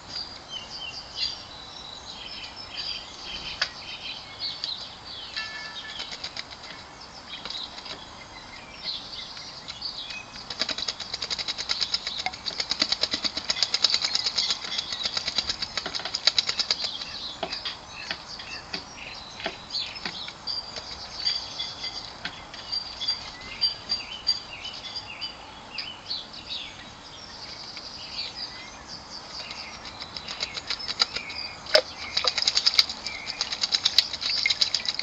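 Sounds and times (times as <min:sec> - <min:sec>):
garden birds calling: 0:00.0 - 0:35.0
bird wing-fluttering and splashing: 0:05.9 - 0:06.8, 0:10.4 - 0:17.2, 0:29.8 - 0:35.0.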